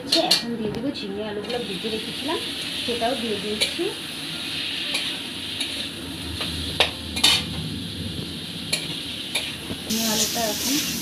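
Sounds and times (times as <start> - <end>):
vegetables sizzling in oil: 1.0 - 11.0
metal spatula scraping a wok: 4.4 - 7.6.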